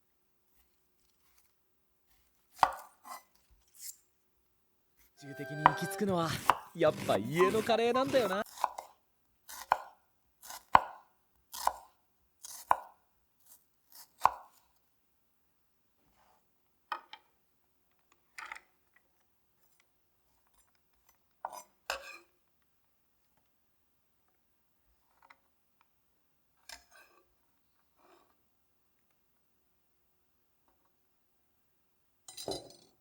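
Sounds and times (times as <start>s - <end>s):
knife chopping on cutting board: 5.4s - 8.9s, 10.5s - 11.0s.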